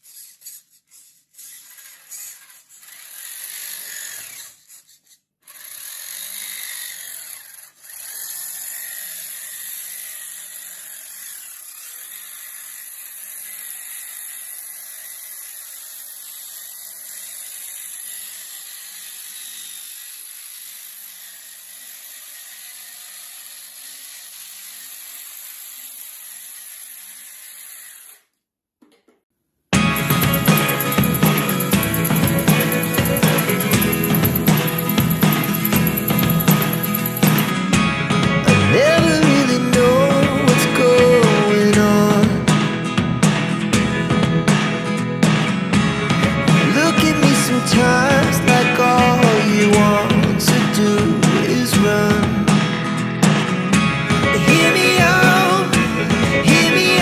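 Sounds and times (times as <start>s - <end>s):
small electric motor whirring: 0.0s - 28.4s, 29.9s - 37.6s.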